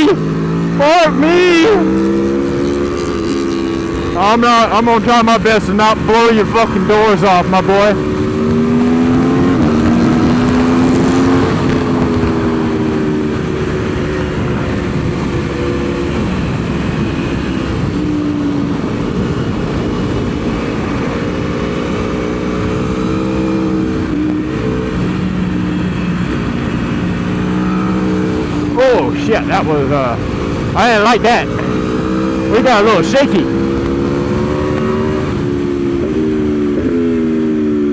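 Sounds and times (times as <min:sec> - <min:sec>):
motorcycle engine accelerating: 0:00.0 - 0:37.9
wind noise on microphone: 0:07.9 - 0:29.1, 0:33.4 - 0:37.9.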